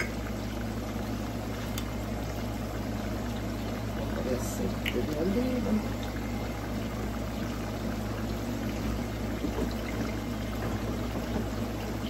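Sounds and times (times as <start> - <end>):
constant low hum: 0.0 - 12.0
plantains frying in oil: 0.0 - 12.0
pot simmering: 0.0 - 12.0.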